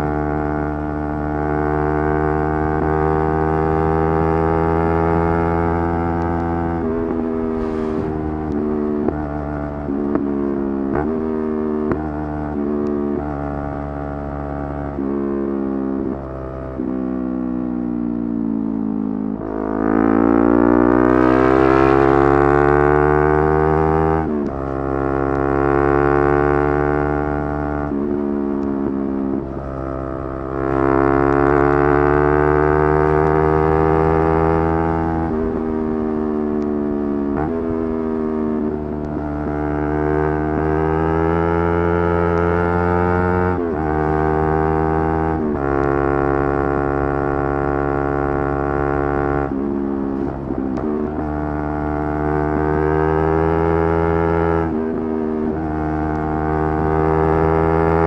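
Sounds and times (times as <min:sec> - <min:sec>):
motorcycle engine revving hard: 0:06.7 - 0:09.3.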